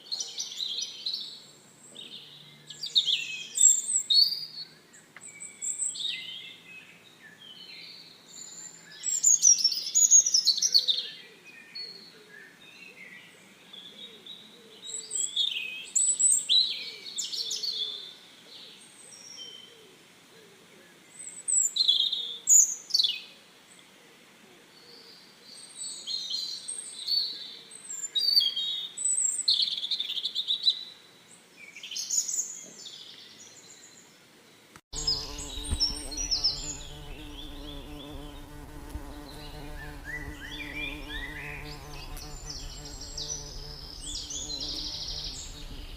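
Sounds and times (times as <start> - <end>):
songbirds singing: 31.6 - 45.9.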